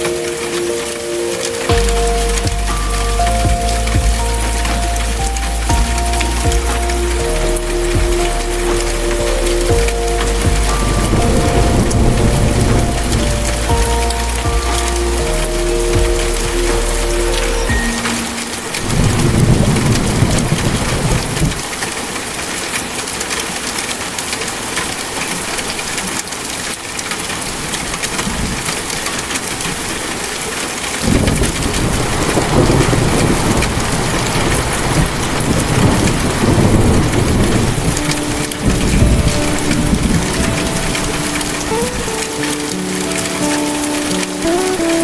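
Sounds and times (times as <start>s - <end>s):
thunder rumbling: 0.0s - 21.7s, 31.0s - 42.4s
steady rain falling: 0.0s - 45.0s.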